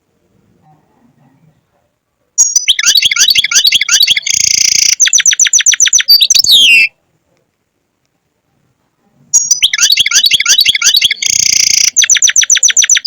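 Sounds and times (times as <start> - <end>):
goldfinch singing: 2.4 - 6.9, 9.4 - 13.0.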